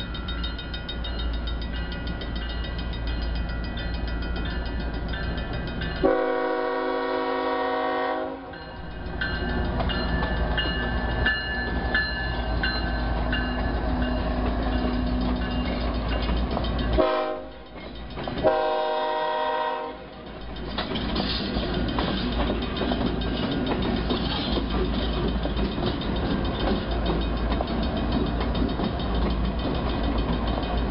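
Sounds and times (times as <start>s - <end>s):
train rumble: 0.0s - 30.9s
locomotive air horn blasts: 6.0s - 8.5s, 17.0s - 17.6s, 18.4s - 20.1s.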